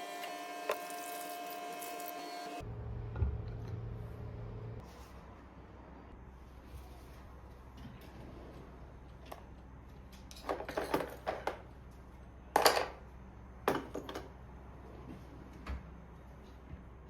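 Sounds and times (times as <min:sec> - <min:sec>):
objects clattering: 0:10.3 - 0:11.6.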